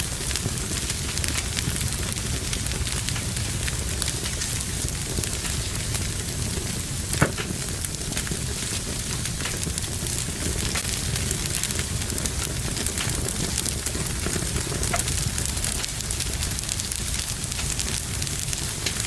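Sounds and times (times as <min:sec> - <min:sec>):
fire popping: 0:00.0 - 0:19.0
wood fire crackling: 0:00.0 - 0:19.0.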